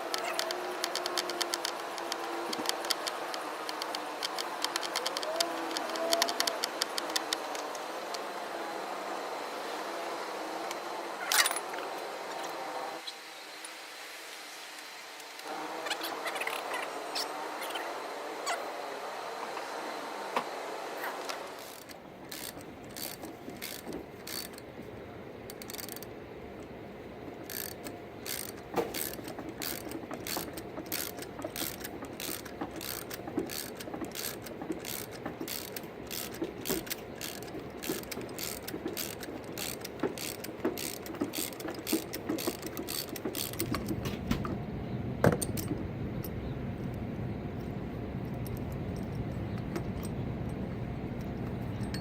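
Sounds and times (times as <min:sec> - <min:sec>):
ratchet wrench clicking: 0:00.0 - 0:07.8, 0:21.6 - 0:24.7, 0:25.5 - 0:26.7, 0:27.4 - 0:44.2.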